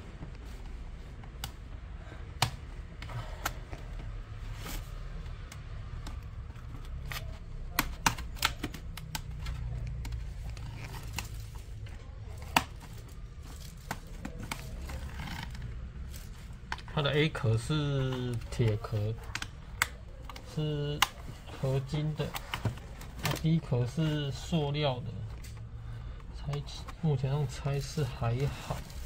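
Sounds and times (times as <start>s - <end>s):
hand tools clicking on plastic: 5.2s - 11.3s.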